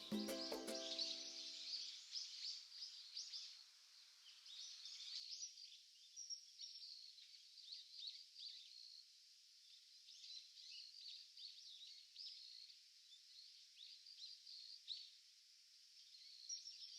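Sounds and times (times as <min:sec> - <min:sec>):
music: 0:00.0 - 0:01.5
faint birds chirping: 0:00.0 - 0:16.9.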